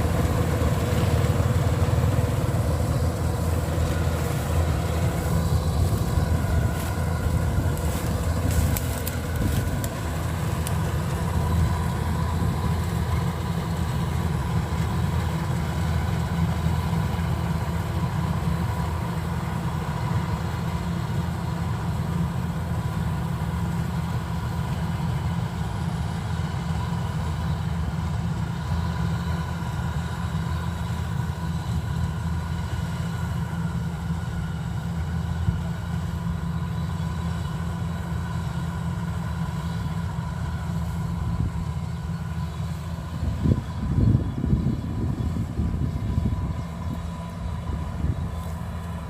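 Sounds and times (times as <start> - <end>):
combine harvester engine running: 0.0 - 49.0.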